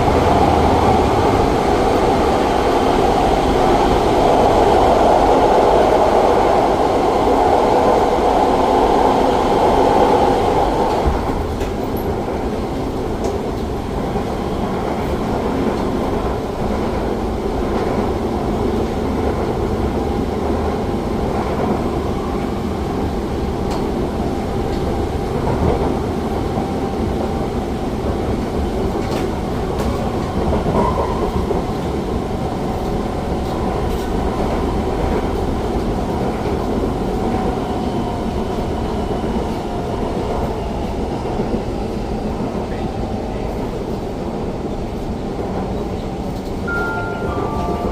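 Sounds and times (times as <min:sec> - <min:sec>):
high train running noise: 0:00.0 - 0:47.9
train wheels rumbling on rail: 0:00.0 - 0:47.9.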